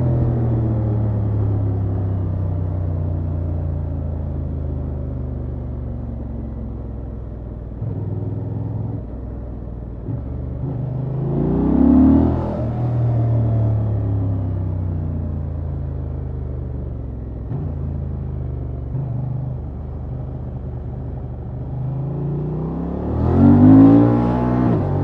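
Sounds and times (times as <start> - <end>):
motorcycle engine running: 14.0 - 22.6.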